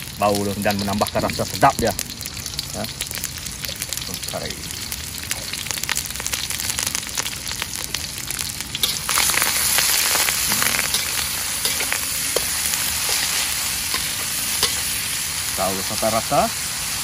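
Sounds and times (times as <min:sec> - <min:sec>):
spice paste sizzling in hot oil: 0:00.0 - 0:17.0
metal spatula clicking on wok: 0:10.9 - 0:13.3.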